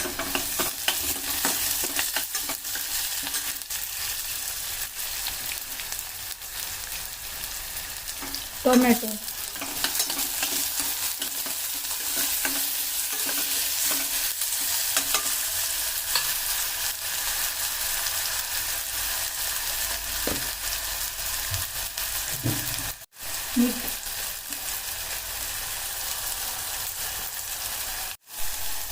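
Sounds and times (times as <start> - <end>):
spatula scraping a pan: 0.0 - 4.2, 8.1 - 16.8
vegetables sizzling in oil: 0.0 - 28.9.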